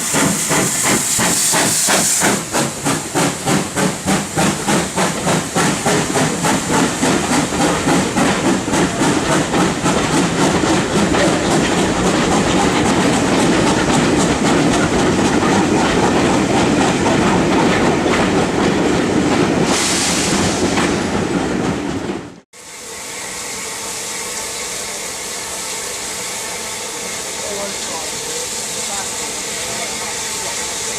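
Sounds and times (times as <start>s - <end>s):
steam hiss burst: 0.0s - 9.8s, 19.6s - 20.7s
steam locomotive exhaust beats: 0.0s - 30.9s
train passing: 0.0s - 30.9s.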